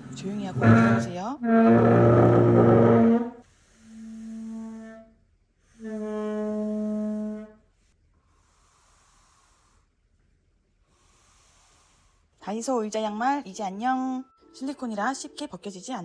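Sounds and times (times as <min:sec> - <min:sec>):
horn-like wind instrument notes: 0:00.0 - 0:03.3.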